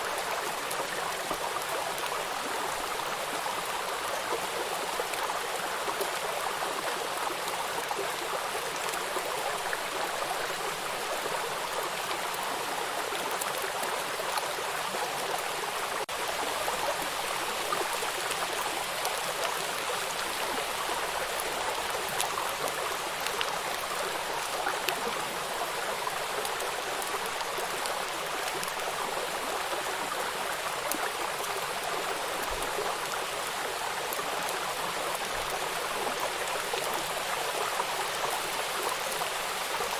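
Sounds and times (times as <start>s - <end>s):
faint raindrop ticks: 21.3s - 29.6s.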